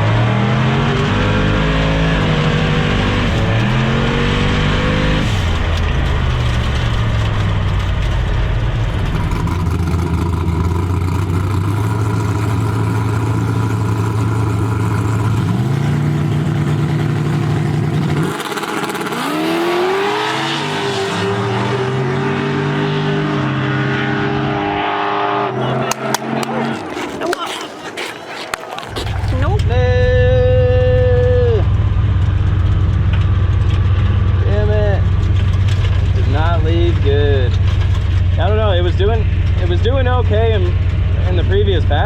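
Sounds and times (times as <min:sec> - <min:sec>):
turbocharged engine revving hard: 0:00.0 - 0:07.6, 0:08.5 - 0:26.9.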